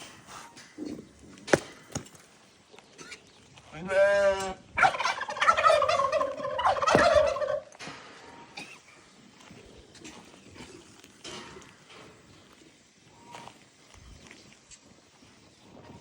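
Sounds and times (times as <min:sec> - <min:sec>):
turkey gobbling: 0:04.8 - 0:07.8.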